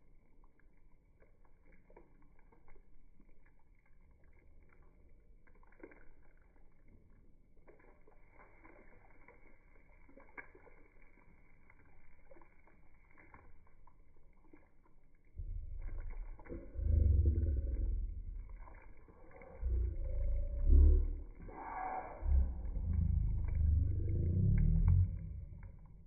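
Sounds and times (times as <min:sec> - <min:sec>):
stew bubbling in a pot: 0:00.0 - 0:26.0
low rumble: 0:15.4 - 0:26.0.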